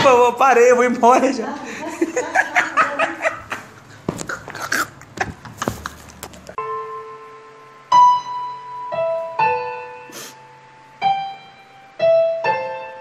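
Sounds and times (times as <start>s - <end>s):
slow piano melody: 6.5s - 13.0s.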